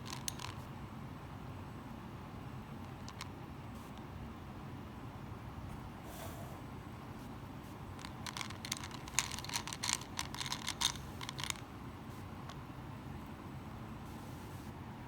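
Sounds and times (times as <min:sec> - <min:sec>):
small clicks and crackles: 0:00.0 - 0:00.6, 0:08.0 - 0:12.6
low steady hum: 0:00.0 - 0:15.0.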